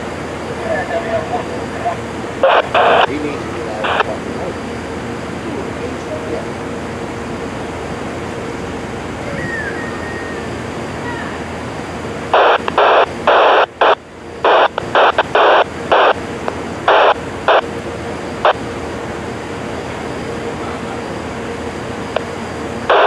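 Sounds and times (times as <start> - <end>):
steady background hiss: 0.0 - 23.0
radio static bursts: 0.7 - 4.6, 12.3 - 17.7, 18.4 - 18.6.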